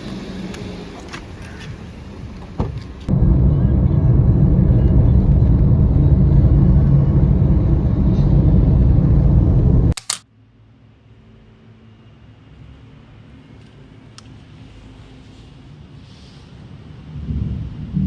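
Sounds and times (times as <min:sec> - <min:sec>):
moving vehicle rumble: 0:00.0 - 0:10.2
click: 0:10.0 - 0:10.2.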